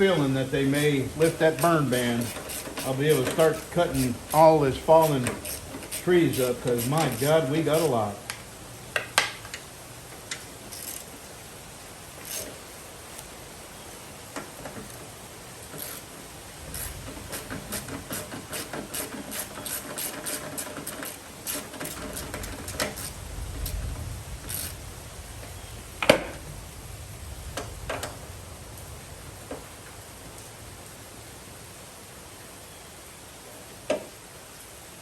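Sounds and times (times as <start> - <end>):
hand tools clicking: 0.7 - 8.4, 10.3 - 11.1, 15.7 - 16.1, 16.7 - 23.8.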